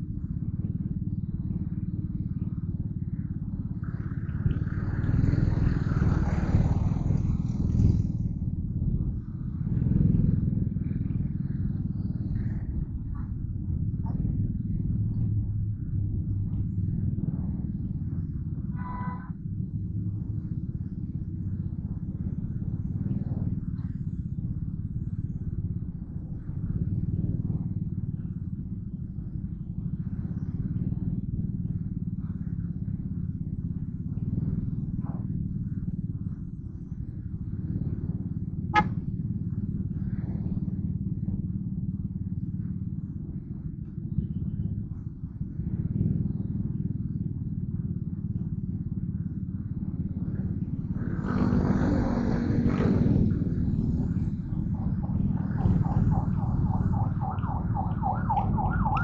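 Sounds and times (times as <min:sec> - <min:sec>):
muffled motorcycle engine rumble: 0:00.0 - 0:59.0.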